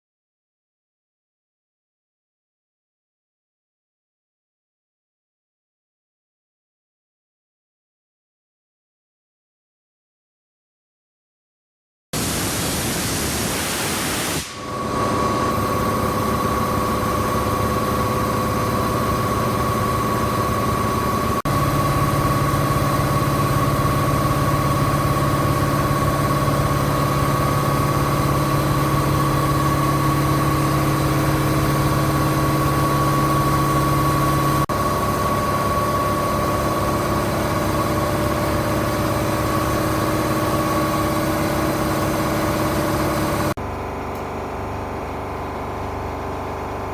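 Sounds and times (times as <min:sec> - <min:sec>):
hiss: 0:12.2 - 0:14.8
marine diesel engine running: 0:14.8 - 0:46.9.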